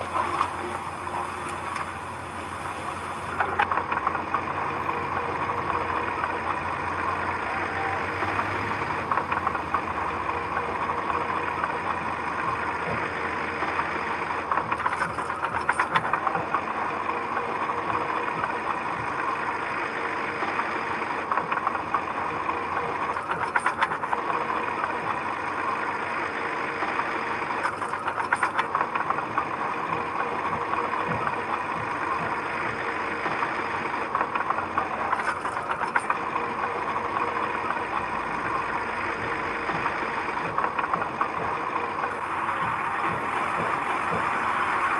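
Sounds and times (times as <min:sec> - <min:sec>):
construction machine engine running: 0:00.0 - 0:44.9
rapid clanking: 0:00.0 - 0:44.9.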